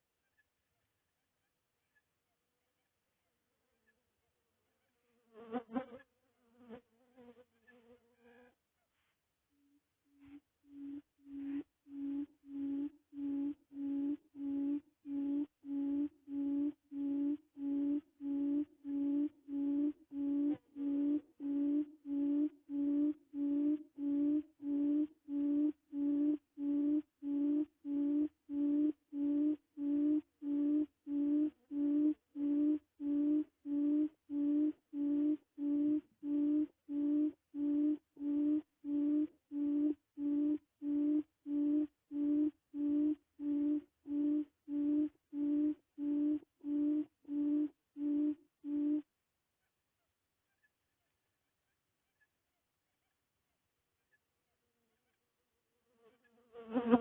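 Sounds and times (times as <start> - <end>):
low hooting quail call: 9.6 - 49.8.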